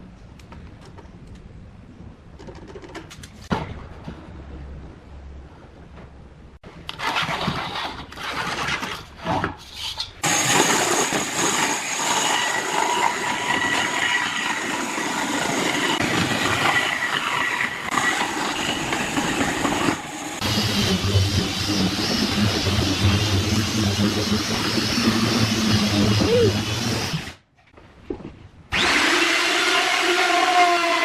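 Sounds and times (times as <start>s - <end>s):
power tool whining: 10.2s - 27.4s, 28.7s - 31.0s.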